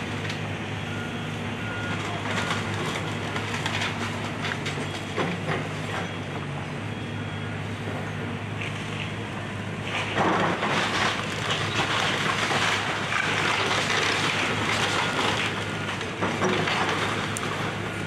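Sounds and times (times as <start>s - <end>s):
excavator engine running: 0.0s - 18.0s
debris crunching and clattering: 9.9s - 17.8s.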